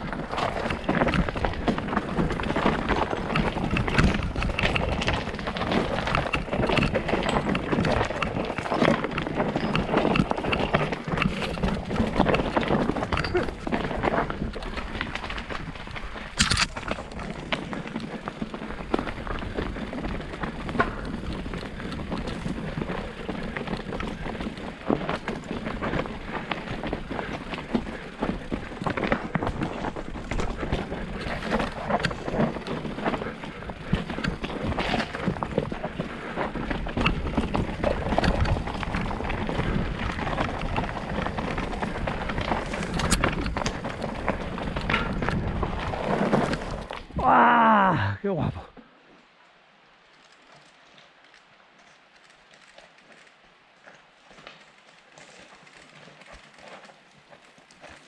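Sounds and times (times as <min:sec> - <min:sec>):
bike rattling and knocking: 0:00.0 - 0:47.2
tyres crunching over stones: 0:00.0 - 0:48.0, 0:50.2 - 0:58.0
wind noise: 0:00.0 - 0:48.6.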